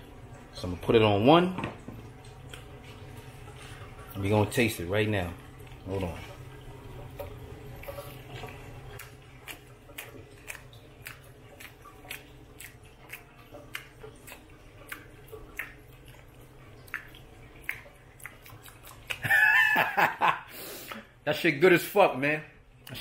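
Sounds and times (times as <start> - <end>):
man chewing with mouth clicks: 7.8 - 19.3
man laughing: 19.2 - 20.5.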